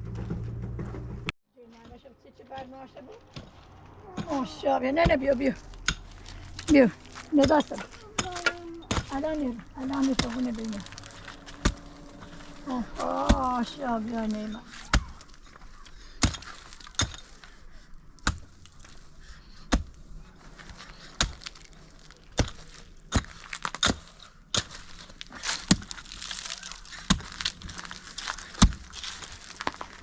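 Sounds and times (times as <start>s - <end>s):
rustling: 2.9s - 30.0s
sharp knocks or cracks: 21.2s - 30.0s.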